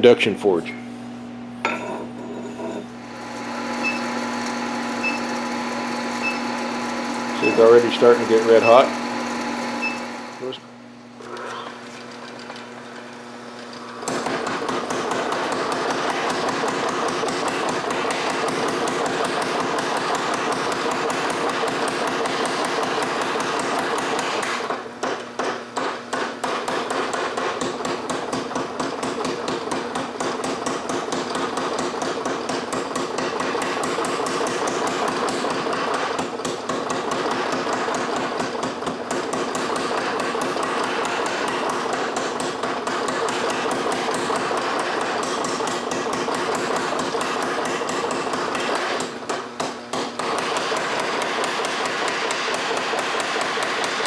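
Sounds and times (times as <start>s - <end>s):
steady hum: 1.6s - 11.4s.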